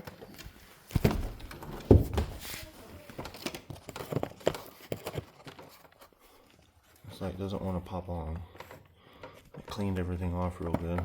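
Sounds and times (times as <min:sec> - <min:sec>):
plastic clicks and knocks: 0:08.5 - 0:11.0.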